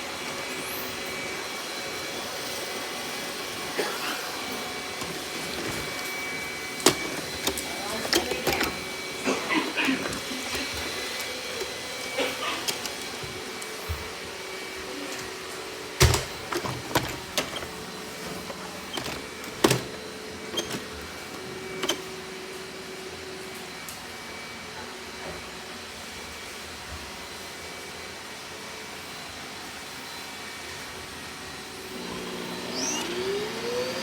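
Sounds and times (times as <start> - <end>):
robot vacuum whirring: 0.5 - 22.4, 31.8 - 34.0.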